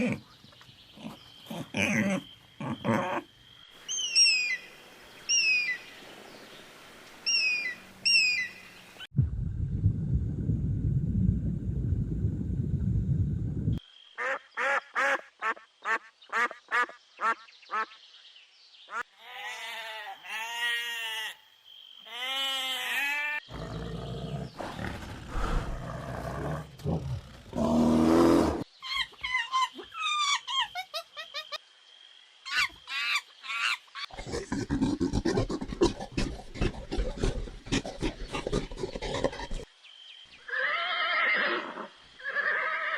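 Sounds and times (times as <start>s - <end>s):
high warbling bird calls: 3.8s - 6.0s, 7.2s - 9.1s.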